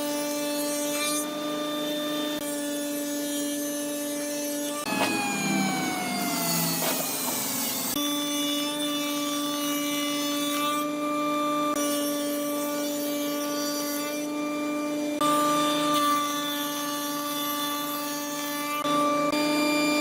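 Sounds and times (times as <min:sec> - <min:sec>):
machine cutting wood rasping: 0:00.0 - 0:20.0
woodworking machine whining: 0:01.2 - 0:12.5.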